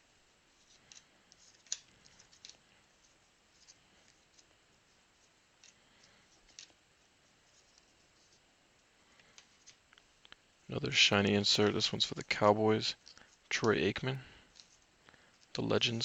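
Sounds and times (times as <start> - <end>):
trading cards being flipped through: 0.6 - 4.6.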